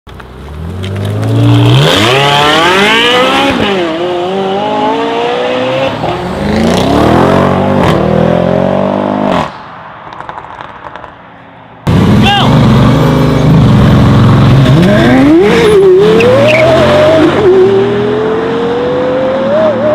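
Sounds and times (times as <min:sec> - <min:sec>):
car engine accelerating hard: 0:01.0 - 0:09.4, 0:11.9 - 0:19.9.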